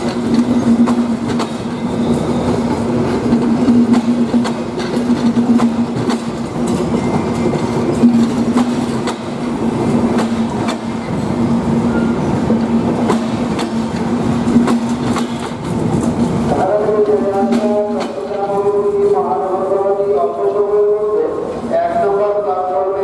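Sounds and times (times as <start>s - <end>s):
train wheels clicking over rail joints: 0.0s - 19.4s
low train drone: 0.0s - 23.0s.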